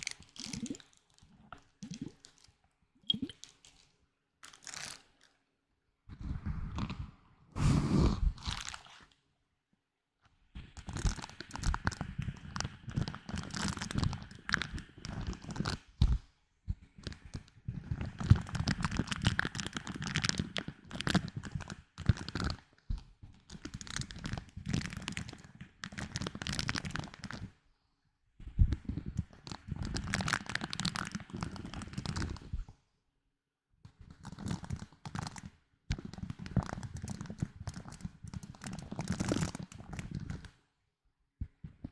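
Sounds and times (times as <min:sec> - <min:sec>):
small clicks and crackles of handling: 0:00.0 - 0:05.4, 0:10.2 - 0:16.3, 0:33.9 - 0:40.7.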